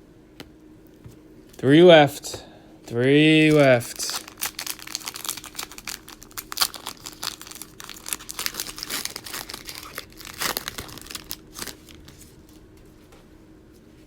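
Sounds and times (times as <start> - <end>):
plastic wrapper crinkling and tearing: 3.3 - 12.6.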